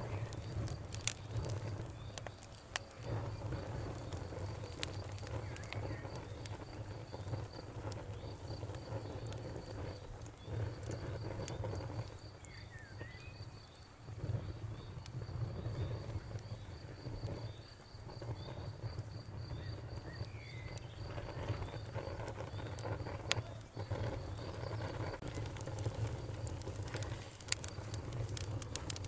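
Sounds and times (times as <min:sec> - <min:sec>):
campfire wood crackling: 0:00.0 - 0:29.0
crickets chirping: 0:00.0 - 0:29.0
bird chirps: 0:12.4 - 0:13.7.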